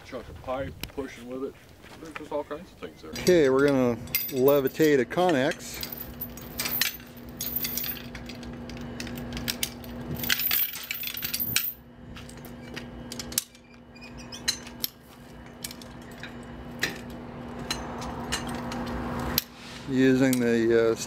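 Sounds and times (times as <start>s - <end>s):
steady low hum: 0.0s - 21.0s
chain clinking and rattling on metal: 3.2s - 13.6s.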